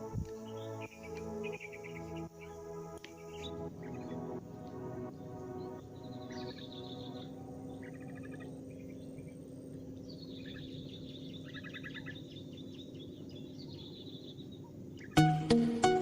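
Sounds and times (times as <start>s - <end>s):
low background hum: 0.0s - 15.2s
small birds chirping: 0.0s - 16.0s
music with plucked notes: 15.1s - 16.0s.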